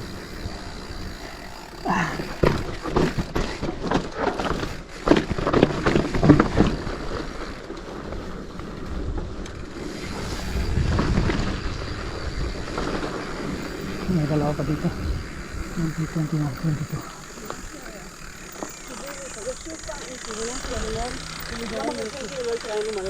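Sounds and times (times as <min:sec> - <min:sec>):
bike clicks and rattles over stones: 0:00.0 - 0:23.0
wind on microphone: 0:08.8 - 0:16.1.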